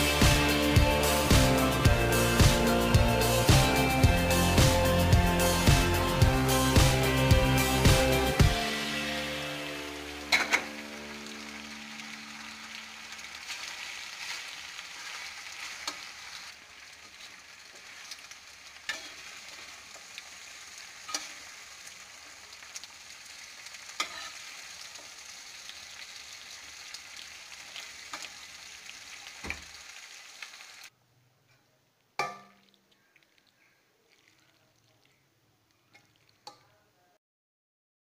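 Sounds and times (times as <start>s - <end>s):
pasta sizzling in a pan: 5.7s - 31.0s.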